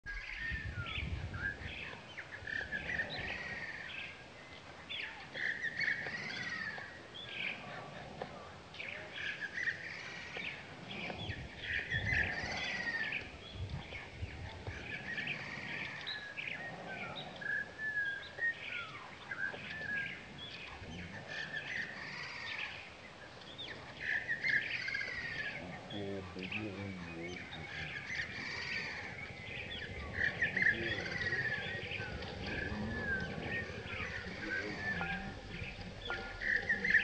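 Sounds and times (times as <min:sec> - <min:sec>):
small birds chirping and whistling: 0:00.1 - 0:37.0
low rumble: 0:27.4 - 0:37.0.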